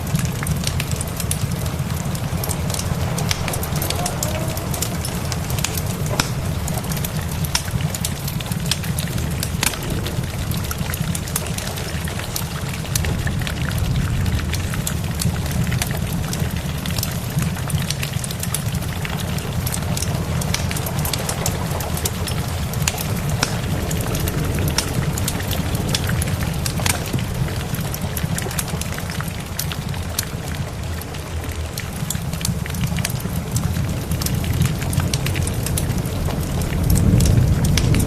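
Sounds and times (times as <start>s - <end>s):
low rumble: 0.0s - 30.0s
steady rain: 0.0s - 38.0s
wood fire crackling and popping: 0.0s - 38.0s.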